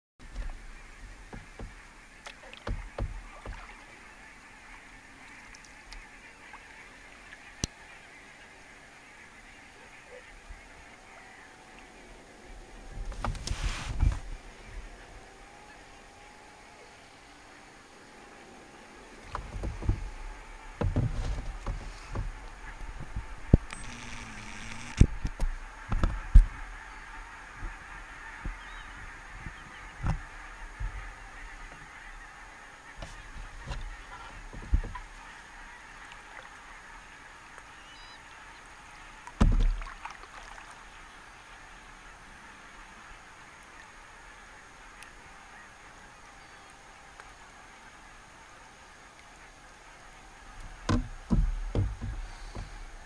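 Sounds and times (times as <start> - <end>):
paddle knocks and splashes: 0.3 - 3.9, 19.2 - 23.7, 33.0 - 35.2, 39.3 - 40.6, 50.6 - 53.0
geese honking: 0.3 - 53.0
sharp knocks: 50.8 - 52.8.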